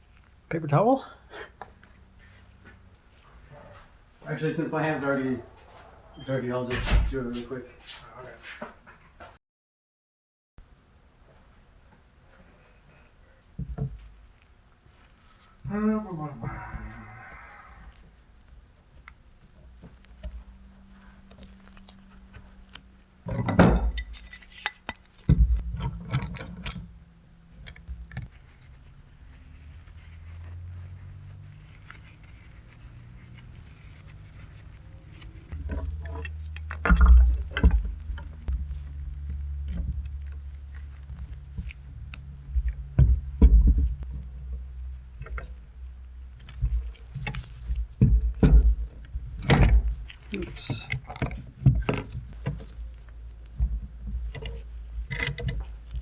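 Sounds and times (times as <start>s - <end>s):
low hum: 15.4s - 56.0s
tools knocking and scraping: 21.4s - 27.0s, 33.3s - 41.9s, 46.4s - 52.8s, 53.5s - 56.0s.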